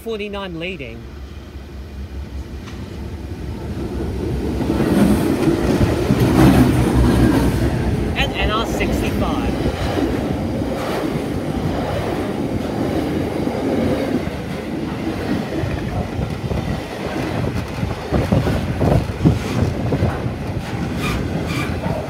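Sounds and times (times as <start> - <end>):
steel wheels rumbling on rails: 1.0 - 22.0
train wagon clunks: 4.6 - 8.1, 9.0 - 22.0.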